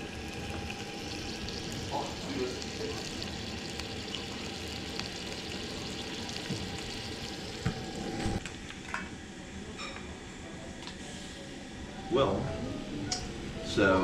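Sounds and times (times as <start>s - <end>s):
bacon sizzling in skillet: 0.0s - 8.4s.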